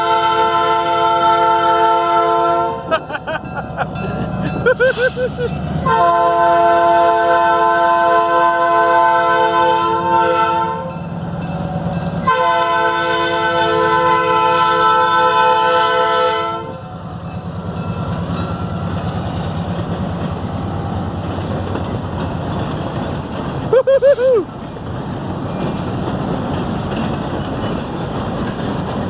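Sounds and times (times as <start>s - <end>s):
locomotive air horn blasts: 0.0s - 2.9s, 5.8s - 11.0s, 12.2s - 16.9s
locomotive engine running: 0.0s - 29.0s.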